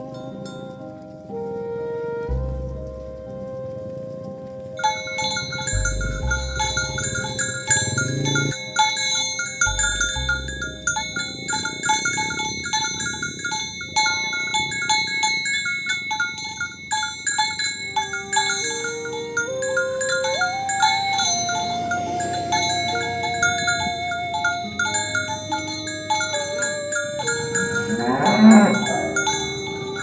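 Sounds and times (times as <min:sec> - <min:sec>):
ringing bell-like tones: 0:04.8 - 0:30.0
cow mooing: 0:05.2 - 0:08.6, 0:18.1 - 0:30.0.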